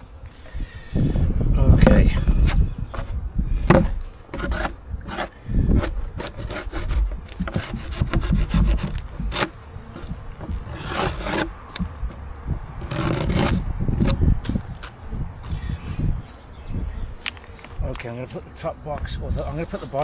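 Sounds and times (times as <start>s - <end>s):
scraping on wooden beehive: 1.7s - 15.6s, 19.4s - 20.0s
small knocks: 1.8s - 15.0s.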